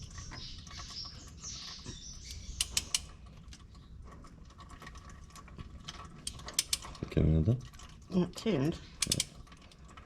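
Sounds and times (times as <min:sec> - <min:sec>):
sharp metallic clicks: 0:02.2 - 0:03.1, 0:06.2 - 0:06.9, 0:09.0 - 0:09.4
ratchet clicking: 0:02.6 - 0:03.1, 0:06.2 - 0:06.8, 0:09.0 - 0:09.4.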